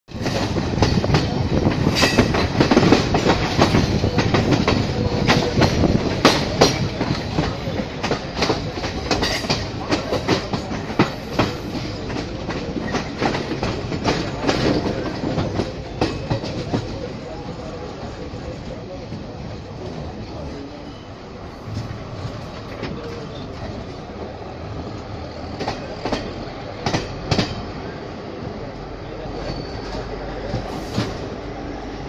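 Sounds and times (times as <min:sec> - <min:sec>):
train rumbling: 0:00.1 - 0:32.0.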